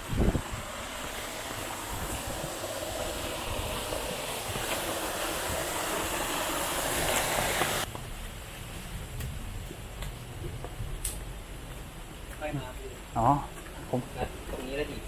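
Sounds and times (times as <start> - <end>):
waterfall rushing water: 0.4 - 7.9.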